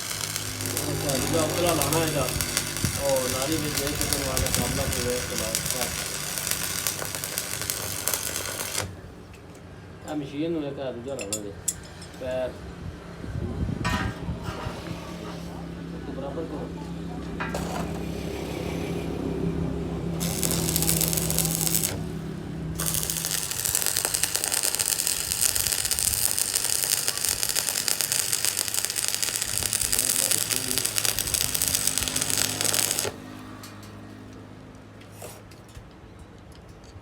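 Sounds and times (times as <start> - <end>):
low hum: 0.0 - 9.0, 18.2 - 34.4.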